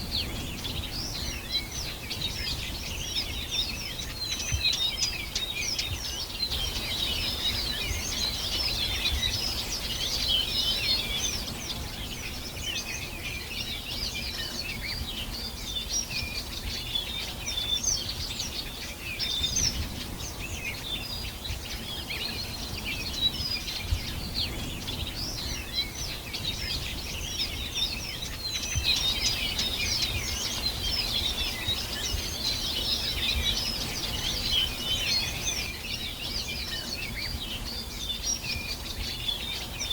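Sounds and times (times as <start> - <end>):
birds chirping in chorus: 0.0 - 39.9.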